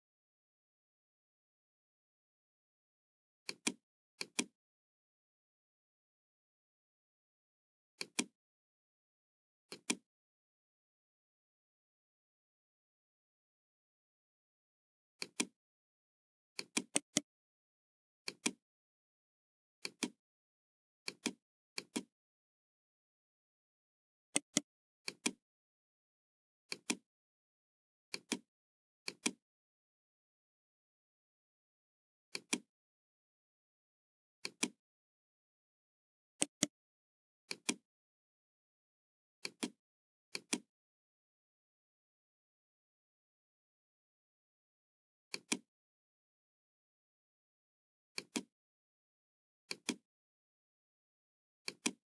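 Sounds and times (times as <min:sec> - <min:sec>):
computer mouse clicking: 0:16.6 - 0:17.2, 0:18.3 - 0:18.6, 0:24.3 - 0:25.4, 0:34.4 - 0:34.8, 0:36.4 - 0:36.7, 0:39.4 - 0:40.6, 0:45.3 - 0:45.6, 0:48.2 - 0:48.5, 0:51.6 - 0:52.0
computer mouse double-clicking: 0:24.3 - 0:25.4, 0:36.4 - 0:36.7, 0:51.6 - 0:52.0.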